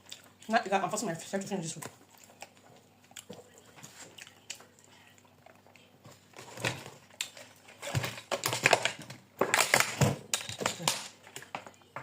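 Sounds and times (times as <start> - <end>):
mouth and eating noises: 0.0 - 6.4.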